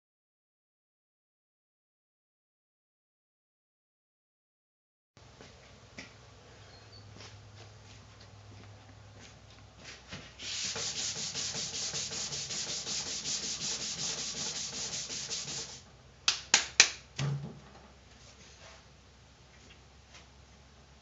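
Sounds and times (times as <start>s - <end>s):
sandpaper scraping on metal: 10.4s - 15.8s.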